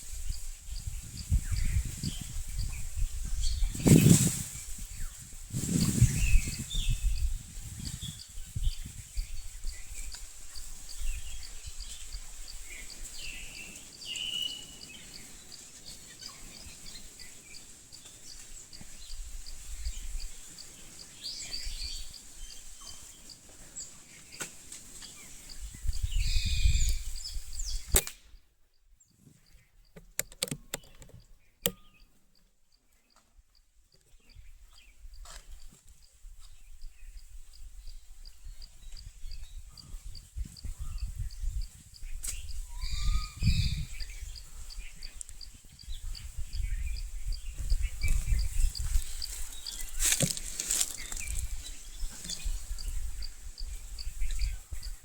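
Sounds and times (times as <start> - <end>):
low wind: 0.0 - 55.0
small birds chirping: 0.0 - 55.0
sharp clicks: 27.9 - 28.4, 30.0 - 31.9.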